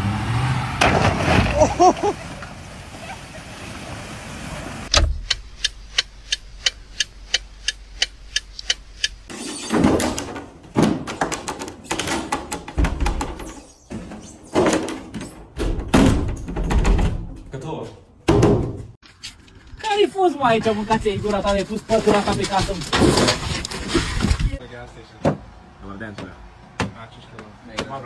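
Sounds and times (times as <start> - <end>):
evenly spaced sharp clicks: 5.2 - 9.3
heavy knocks and thumps: 9.7 - 19.0.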